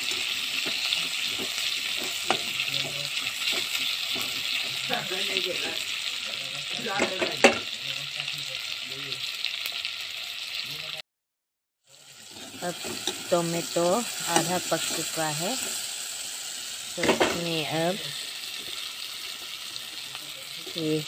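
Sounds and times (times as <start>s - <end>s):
metal spatula scraping a wok: 0.0s - 7.7s, 12.2s - 17.7s
vegetables sizzling in hot oil: 0.0s - 11.0s, 11.9s - 21.0s.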